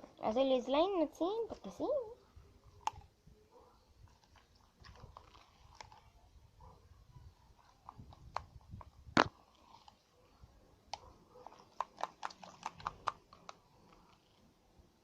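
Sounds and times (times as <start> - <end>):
sticky slime being stirred: 4.1 - 6.2, 11.5 - 14.2.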